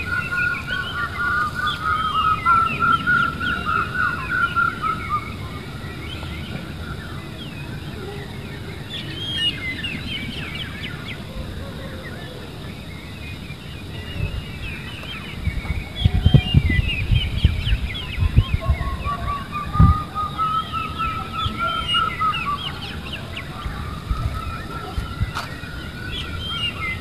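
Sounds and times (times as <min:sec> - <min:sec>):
birds chirping: 0:00.0 - 0:27.0
low thumps and rumbles: 0:15.4 - 0:20.0.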